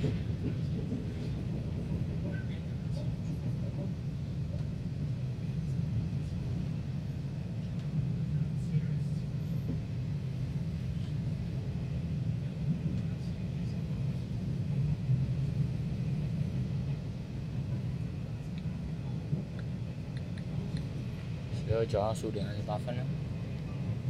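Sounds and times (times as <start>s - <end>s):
train rumbling on the track: 0.0s - 24.0s.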